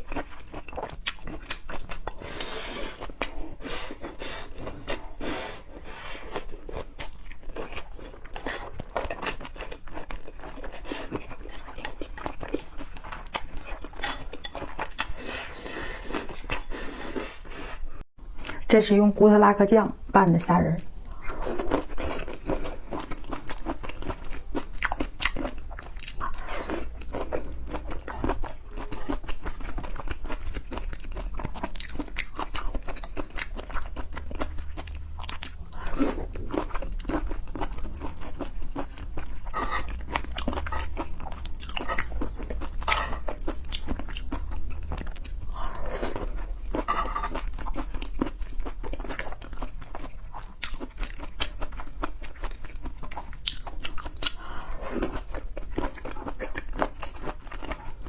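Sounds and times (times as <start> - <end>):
person chewing shrimp: 0.0 - 18.6, 20.8 - 58.0.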